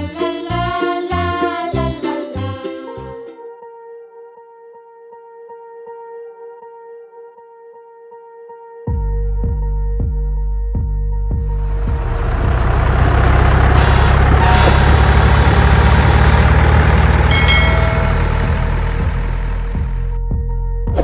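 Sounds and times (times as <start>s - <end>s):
background music: 0.0s - 21.0s
truck engine: 11.4s - 20.2s.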